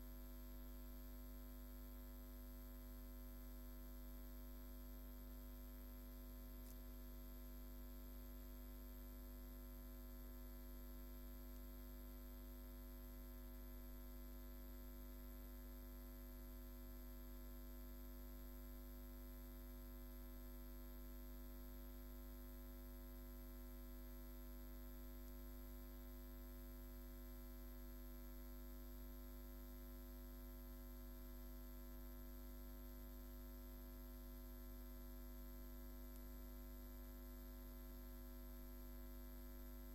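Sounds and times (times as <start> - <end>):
faint thin high whine: 0.0 - 17.1
steady electrical hum: 0.0 - 39.9.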